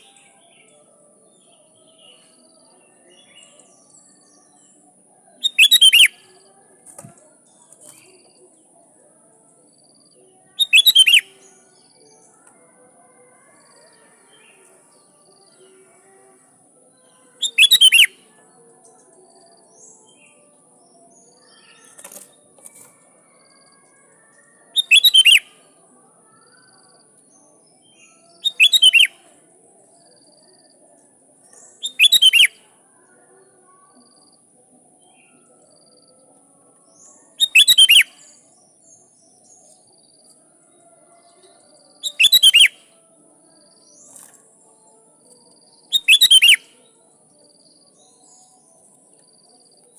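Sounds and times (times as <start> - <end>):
bulbul calling: 5.4 - 6.1, 17.4 - 18.1, 24.8 - 25.4, 28.4 - 29.1, 31.8 - 32.5, 45.9 - 46.6.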